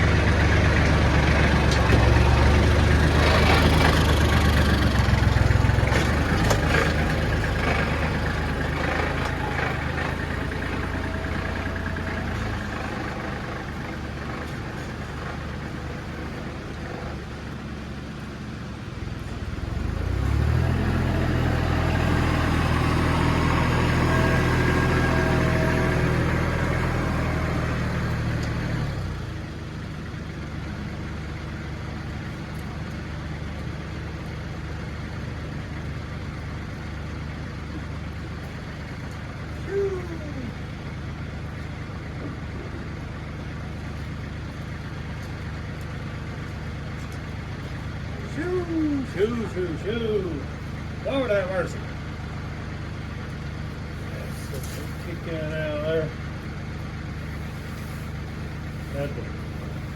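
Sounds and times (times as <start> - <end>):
vehicle engine humming: 0.0 - 59.9.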